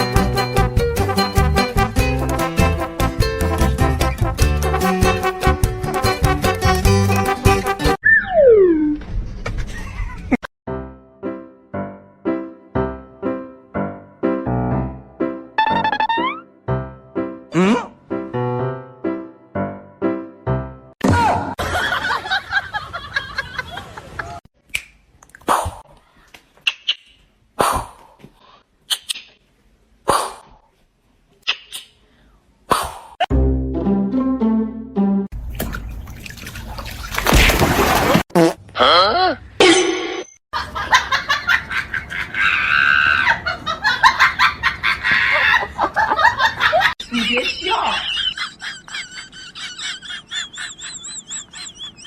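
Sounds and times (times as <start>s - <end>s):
music: 0.0s - 8.0s, 10.7s - 21.0s, 33.3s - 35.3s.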